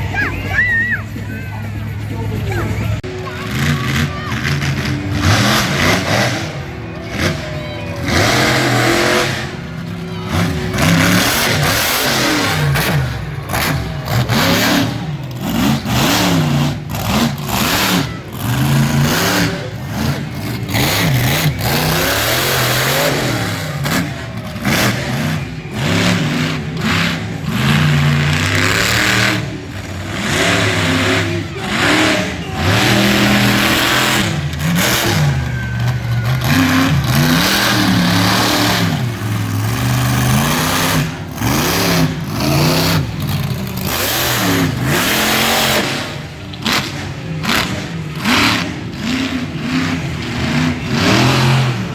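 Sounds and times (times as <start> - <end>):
monster truck engine revving: 0.0 - 51.9.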